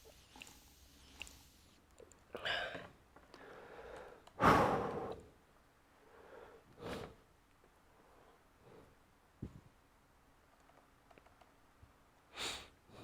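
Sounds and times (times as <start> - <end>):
person breathing out: 2.4 - 5.3.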